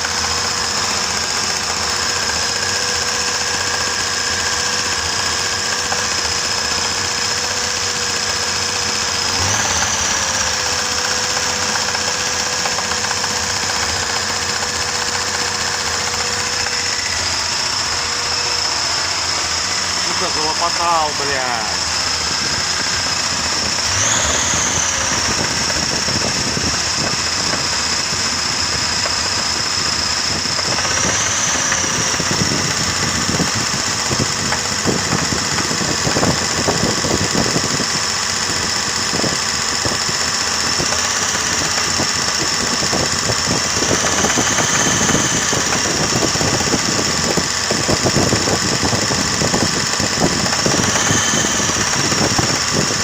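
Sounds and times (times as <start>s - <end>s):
car engine running: 0.0s - 53.0s
high whine: 0.0s - 53.0s
rapid uneven engine knock: 0.0s - 53.0s.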